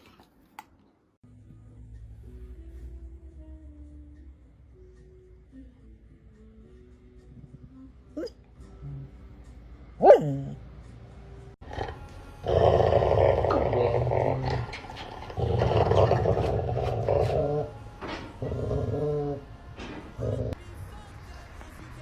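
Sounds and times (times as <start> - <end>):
dog growling: 10.0 - 10.6, 11.6 - 17.8, 18.4 - 19.5, 20.2 - 20.6.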